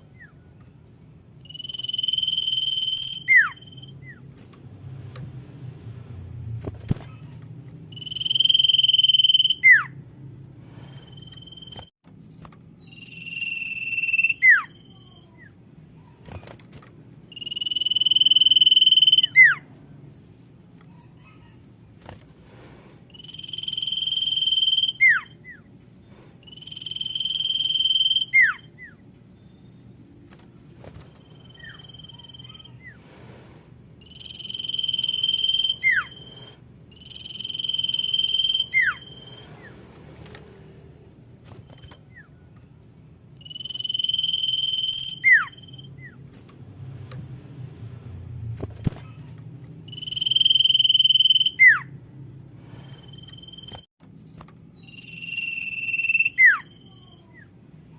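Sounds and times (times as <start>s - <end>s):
bird high whistling call: 1.4s - 4.2s, 7.9s - 10.0s, 12.8s - 15.1s, 17.3s - 19.6s, 23.2s - 25.6s, 26.4s - 29.0s, 34.0s - 39.7s, 43.4s - 46.2s, 49.9s - 51.9s, 54.8s - 57.3s.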